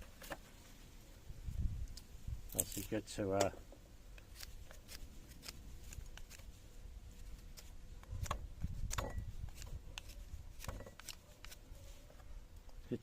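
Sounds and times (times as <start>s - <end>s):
knife clicks and scrapes: 4.1s - 6.5s, 7.2s - 11.6s.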